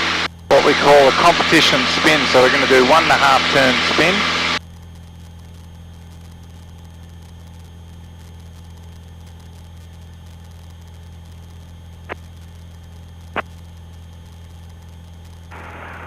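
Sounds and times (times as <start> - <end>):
aircraft engine droning: 0.0 - 4.6, 14.8 - 16.0.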